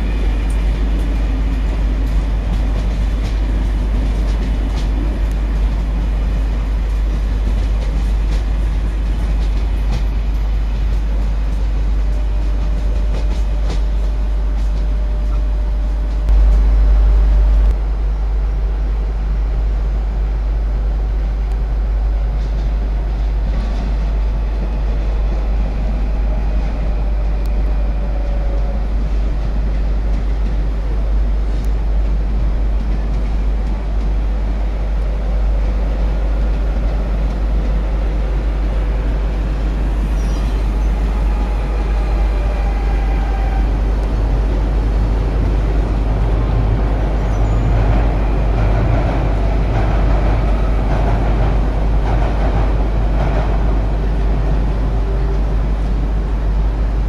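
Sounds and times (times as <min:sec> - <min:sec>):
low microphone rumble: 0:00.0 - 0:30.0
train wheels rumbling on rails: 0:00.0 - 0:57.0.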